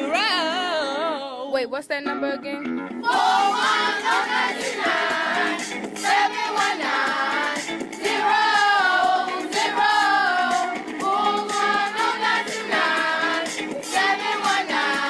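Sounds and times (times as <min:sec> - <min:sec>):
backing track music: 0:00.0 - 0:15.0
children singing a jingle: 0:03.0 - 0:15.0.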